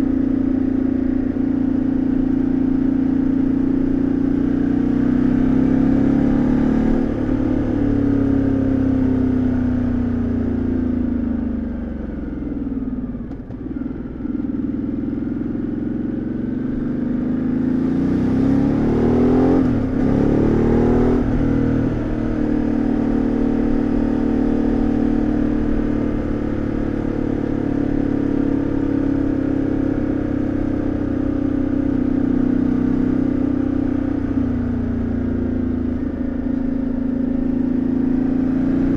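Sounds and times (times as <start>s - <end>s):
motorcycle engine and exhaust: 0.0s - 38.9s.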